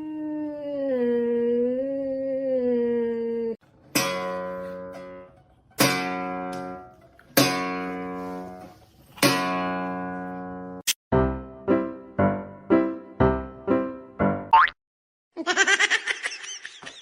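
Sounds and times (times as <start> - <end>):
guitar chords strummed: 3.9 - 8.4.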